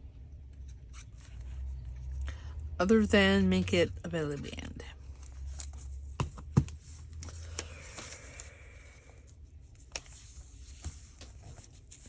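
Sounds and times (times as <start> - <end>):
paper being handled: 9.8 - 12.0.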